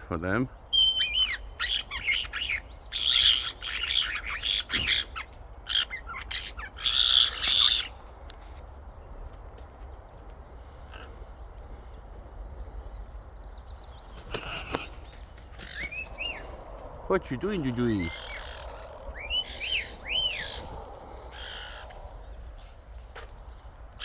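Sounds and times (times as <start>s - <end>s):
pet birds squawking: 0.0s - 8.5s, 14.0s - 24.0s
soft bird chirps: 0.0s - 24.0s.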